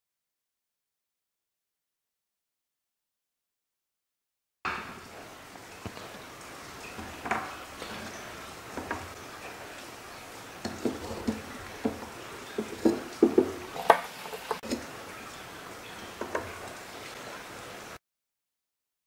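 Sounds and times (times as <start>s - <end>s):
faint steady hiss: 4.7s - 18.0s.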